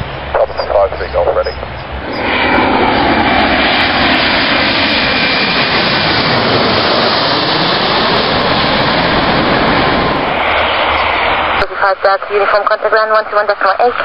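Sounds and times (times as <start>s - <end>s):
jet airliner engines passing by: 0.0s - 14.0s.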